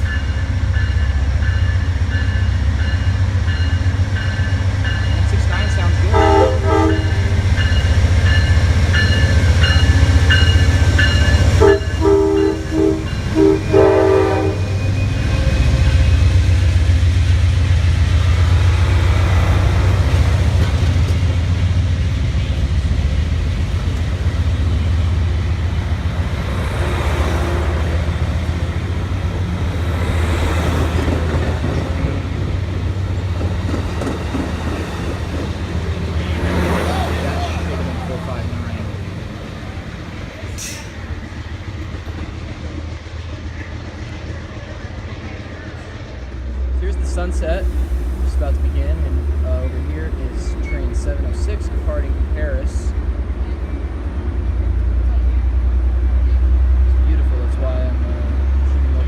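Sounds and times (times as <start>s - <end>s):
locomotive and rolling cars rumble: 0.0s - 59.0s
train air horn blasts: 6.1s - 7.4s, 11.5s - 16.1s.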